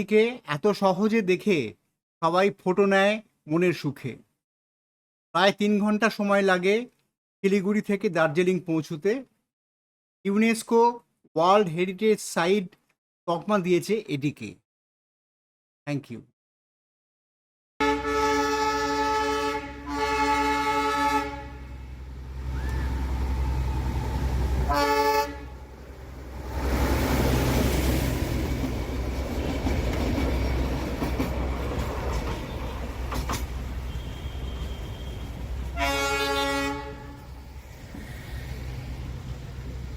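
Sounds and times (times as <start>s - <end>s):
train horn blasts: 17.8s - 22.0s, 24.6s - 25.7s, 33.9s - 37.4s
train rumbling: 18.4s - 39.9s.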